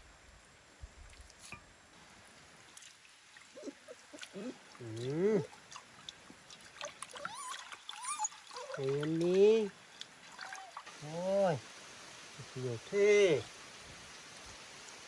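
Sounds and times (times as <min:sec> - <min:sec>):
man calling out: 0:04.8 - 0:05.5, 0:08.8 - 0:09.7, 0:11.0 - 0:11.6, 0:12.5 - 0:13.4.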